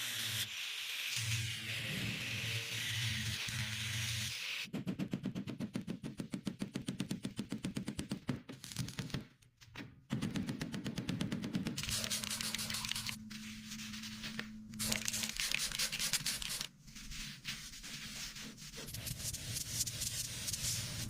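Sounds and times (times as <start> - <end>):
sanding scraping a surface: 11.8 - 21.0.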